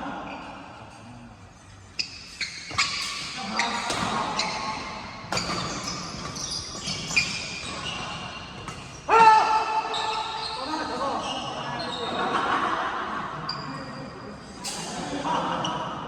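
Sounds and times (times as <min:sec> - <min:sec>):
shoes squeaking on court: 0:01.8 - 0:09.1, 0:09.8 - 0:12.4
rackets striking shuttlecock: 0:02.7 - 0:07.0.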